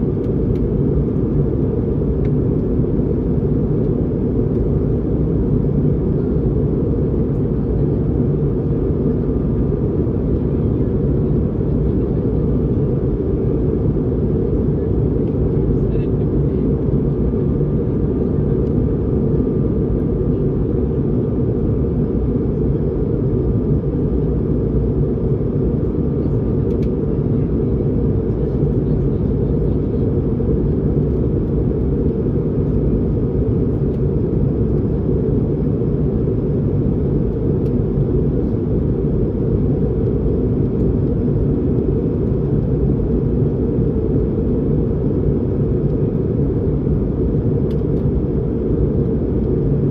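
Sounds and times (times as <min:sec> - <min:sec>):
aircraft cabin engine rumble: 0:00.0 - 0:49.9.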